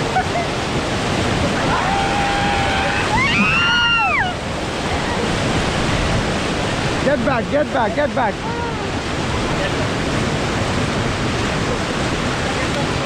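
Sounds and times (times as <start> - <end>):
whitewater rapids rushing: 0.0 - 13.0
person whooping: 1.6 - 4.4.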